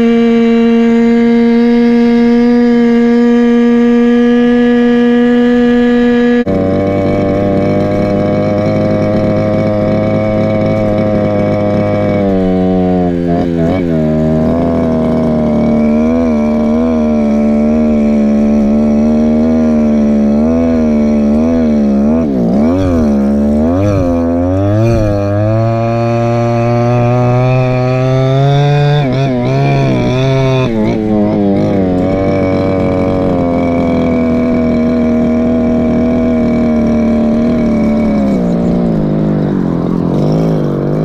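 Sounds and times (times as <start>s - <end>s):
scooter two-stroke engine revving: 0.0s - 41.0s.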